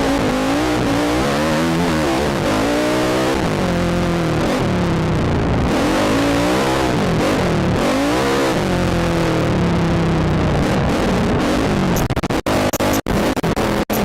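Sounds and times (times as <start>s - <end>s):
atv engine running hard: 0.0s - 14.0s.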